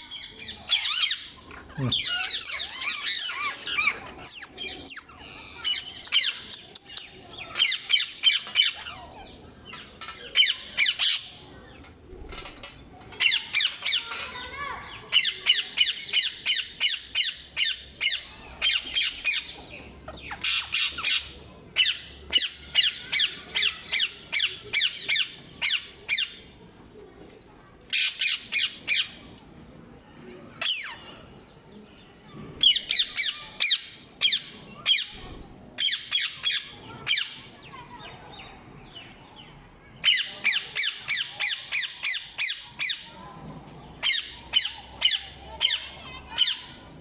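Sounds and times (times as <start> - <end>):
parakeets squawking: 0.7 - 6.4.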